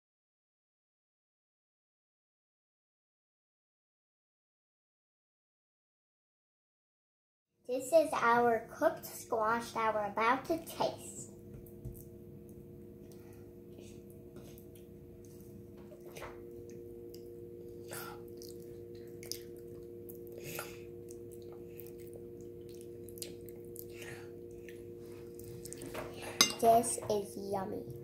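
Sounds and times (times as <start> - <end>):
faint steady hum: 7.7 - 28.0
children chewing: 17.8 - 26.4.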